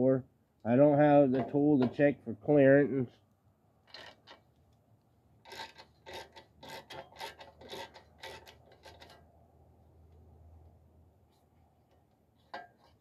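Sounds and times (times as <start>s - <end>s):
hand tool rasping strokes: 5.4s - 9.2s.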